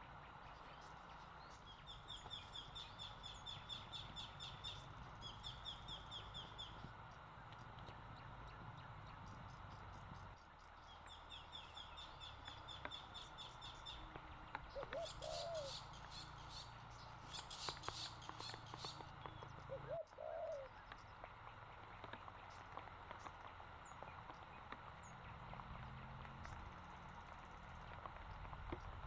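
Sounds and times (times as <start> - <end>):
low bird cooing: 11.0 - 20.9
high bird chirps: 14.7 - 20.7.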